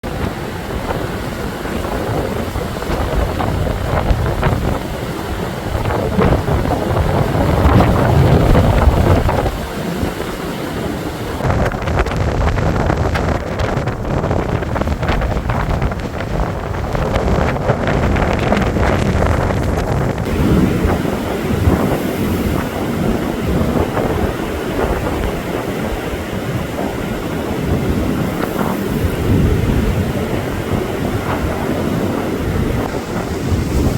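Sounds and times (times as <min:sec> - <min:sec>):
blizzard wind buffeting microphone: 0:00.0 - 0:33.9.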